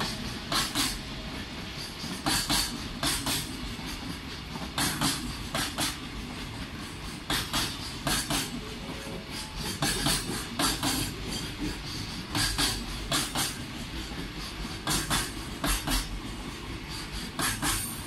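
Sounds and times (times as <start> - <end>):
freight train rolling: 0.0 - 18.0
wheel clacks over rail joints: 2.0 - 8.6, 9.4 - 16.2.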